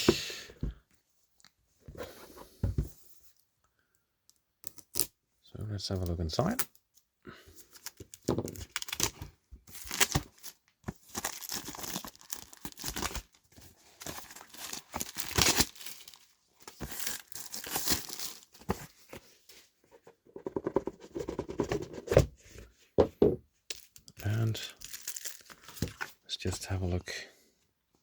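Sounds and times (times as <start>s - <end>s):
packaging crinkling and tearing: 7.7s - 18.8s, 23.7s - 26.2s.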